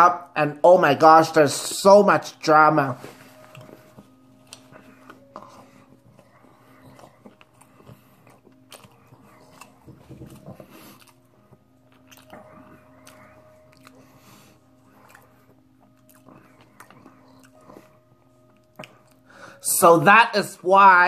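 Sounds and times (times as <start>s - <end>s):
person chewing food: 3.0s - 19.6s.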